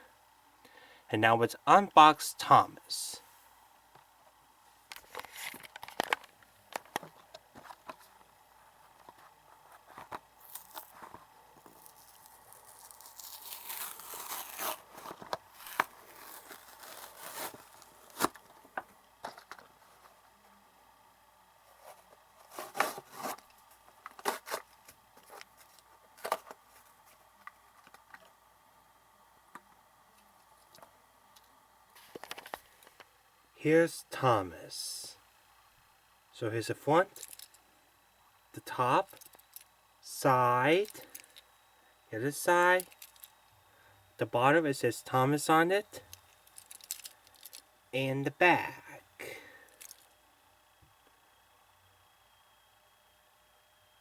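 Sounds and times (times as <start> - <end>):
packaging clicks and crinkling: 4.9 - 8.2, 9.8 - 18.6, 22.4 - 27.2, 46.1 - 47.6
packaging tearing: 10.4 - 11.0, 11.6 - 18.4.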